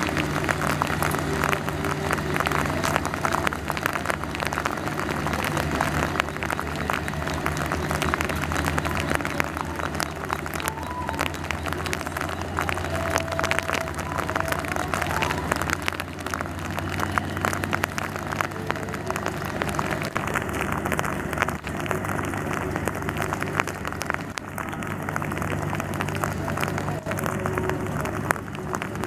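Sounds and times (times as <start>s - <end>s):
diesel train engine hum: 0.0s - 29.0s
rain falling: 0.0s - 29.0s.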